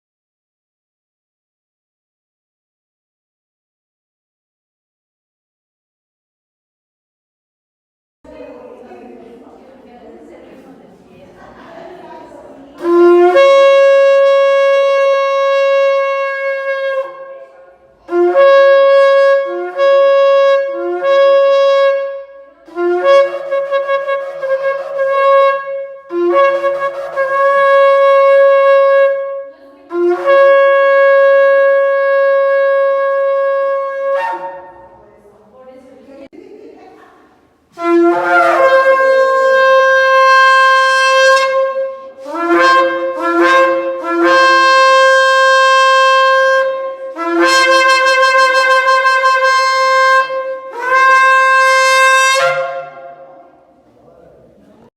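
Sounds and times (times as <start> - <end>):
ram's horn blasts: 12.8 - 17.5, 18.1 - 35.0, 37.7 - 53.3.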